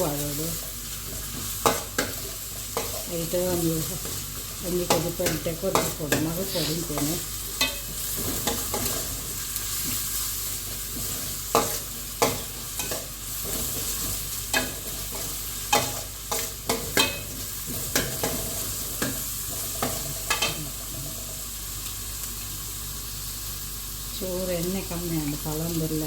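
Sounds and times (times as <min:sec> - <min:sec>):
chicken sizzling in pan: 0:00.0 - 0:26.0
metal spoon scraping pan: 0:04.8 - 0:09.2.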